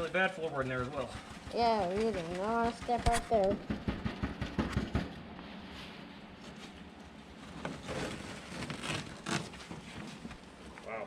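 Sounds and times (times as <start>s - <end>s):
carpet rustling and scraping: 4.6s - 10.8s.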